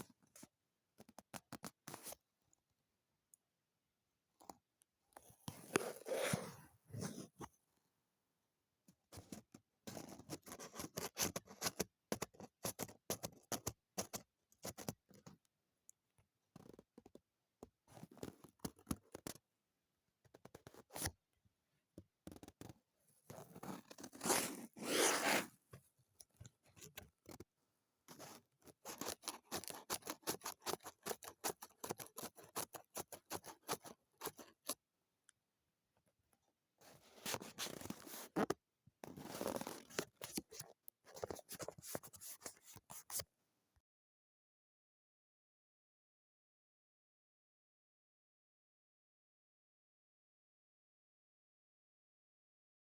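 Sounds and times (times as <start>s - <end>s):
scissors snipping paper: 28.8s - 34.7s.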